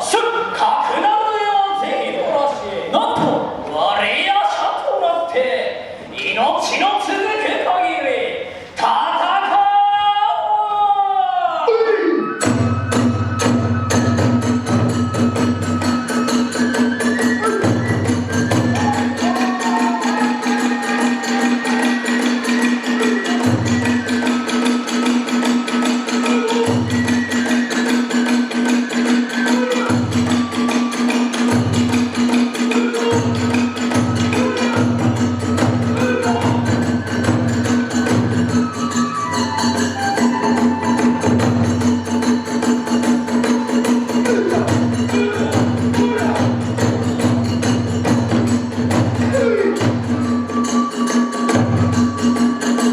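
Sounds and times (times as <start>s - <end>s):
flute melody: 11.2s - 46.7s, 49.2s - 52.9s
drums: 12.3s - 52.9s.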